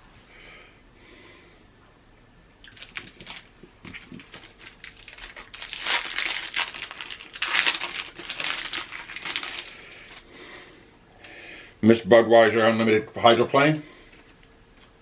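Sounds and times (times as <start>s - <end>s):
wrapper crinkling: 2.6s - 10.4s.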